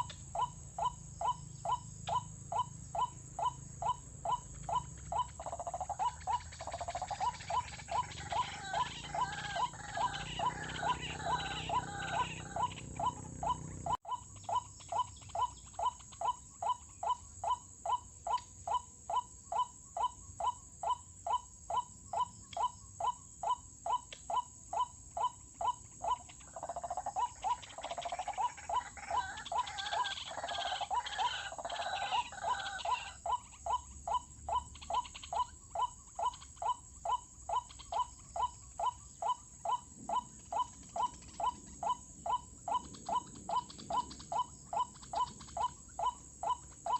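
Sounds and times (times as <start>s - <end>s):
waterhen calling: 0.0s - 17.3s, 25.3s - 46.9s.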